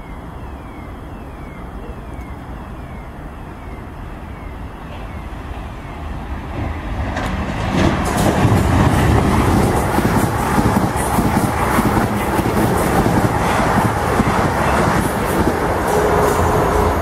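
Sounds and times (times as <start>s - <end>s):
electric train running past: 0.0s - 17.0s
wheels clicking over rail joints: 6.5s - 17.0s.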